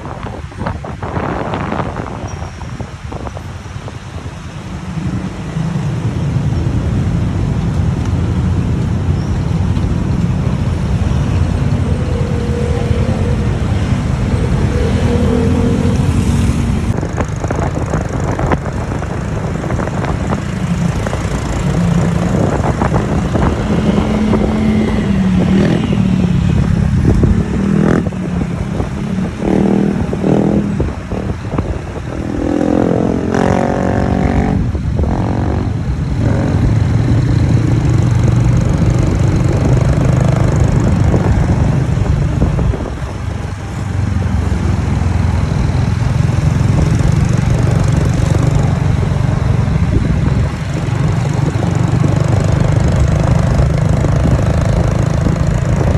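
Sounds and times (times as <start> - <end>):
motorbike engine and road rumble: 0.0 - 55.9
engine revving: 10.0 - 17.0, 19.0 - 31.1, 32.2 - 42.2.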